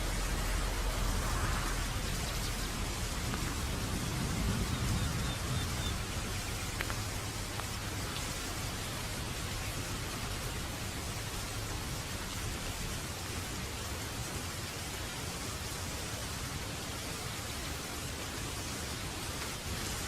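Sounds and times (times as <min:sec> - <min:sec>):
scattered drips: 0:00.0 - 0:13.5
steady rain hiss: 0:00.0 - 0:20.0.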